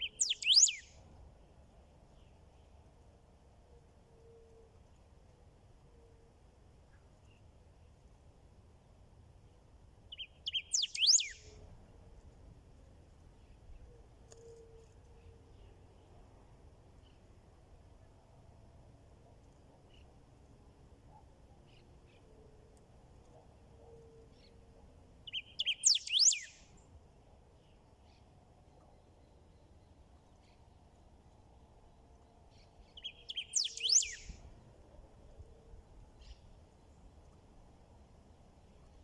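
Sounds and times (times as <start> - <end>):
songbird singing: 0.0 - 3.0, 9.4 - 12.4, 19.4 - 20.3, 21.0 - 37.6.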